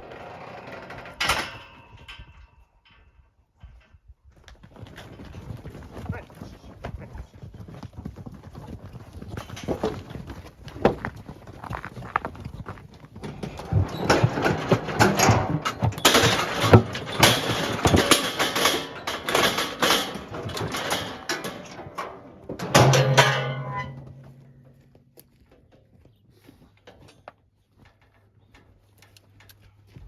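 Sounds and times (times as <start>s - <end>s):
hooves banging on metal chute: 0.0s - 3.1s, 9.2s - 26.0s
loud metal clang: 14.1s - 24.7s.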